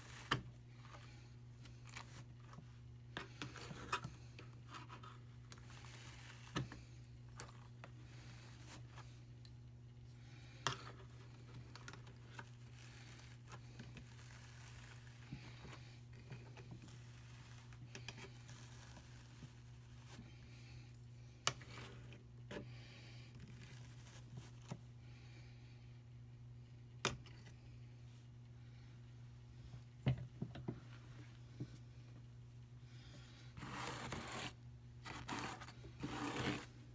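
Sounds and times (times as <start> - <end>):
drum carder scratching wool: 33.6 - 36.8.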